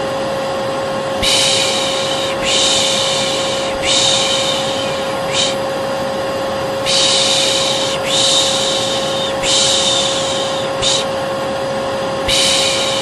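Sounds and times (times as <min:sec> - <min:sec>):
hair dryer whining: 0:00.0 - 0:13.0
person shushing: 0:01.2 - 0:05.6, 0:06.8 - 0:11.2, 0:12.3 - 0:13.0.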